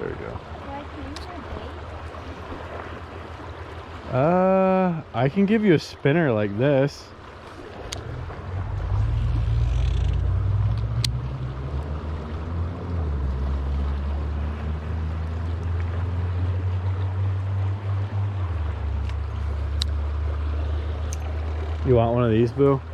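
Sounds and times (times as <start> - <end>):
boat motor rumbling: 0.0 - 22.9
sharp tick: 9.8 - 11.2.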